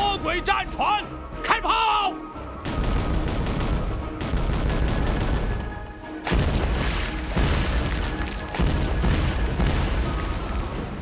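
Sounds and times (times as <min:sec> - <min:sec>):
cannon shots and explosions: 0:02.6 - 0:11.0.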